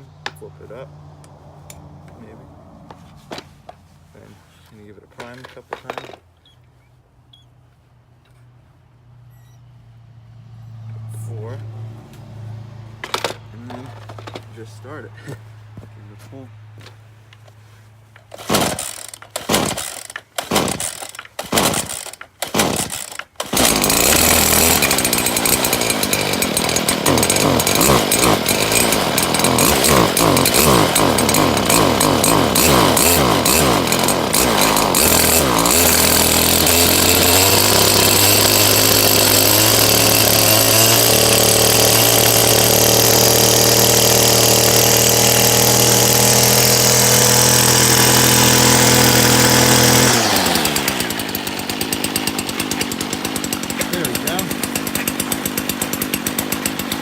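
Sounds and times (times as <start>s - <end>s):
starter rope pulls: 2.2s - 6.3s, 13.0s - 57.0s
string trimmer engine running: 13.0s - 15.5s, 18.2s - 57.0s.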